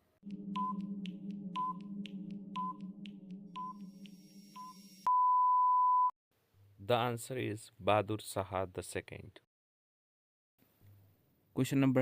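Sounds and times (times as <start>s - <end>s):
steady low drone: 0.0s - 5.1s
clock ticking: 0.2s - 4.2s
long beep: 0.2s - 6.1s
short beeps: 3.6s - 6.1s.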